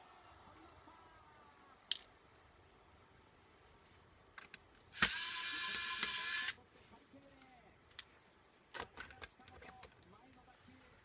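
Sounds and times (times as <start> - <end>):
electric screwdriver whirring: 5.0 - 6.6.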